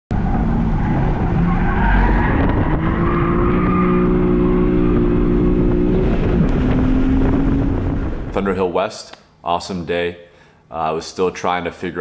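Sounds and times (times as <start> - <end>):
car engine running hard: 0.1 - 8.4.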